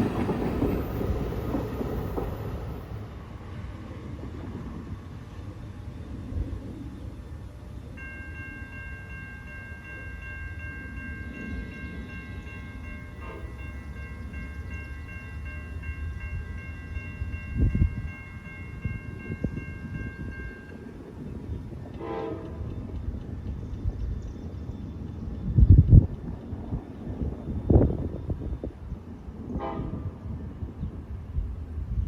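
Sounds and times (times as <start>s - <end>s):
train rumbling: 0.0s - 32.0s
train horn: 13.2s - 13.8s, 21.9s - 22.7s, 29.5s - 30.4s.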